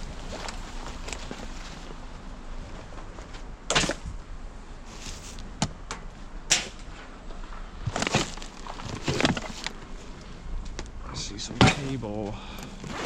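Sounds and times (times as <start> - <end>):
rustling handling sounds: 0.0 - 3.5, 4.8 - 5.5, 7.8 - 10.2
low steady background noise: 0.0 - 13.0.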